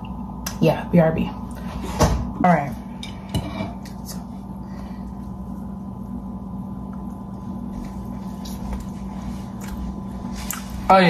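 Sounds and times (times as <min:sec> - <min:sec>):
steady low hum: 0:00.0 - 0:11.0
person chewing a waffle: 0:07.8 - 0:10.9.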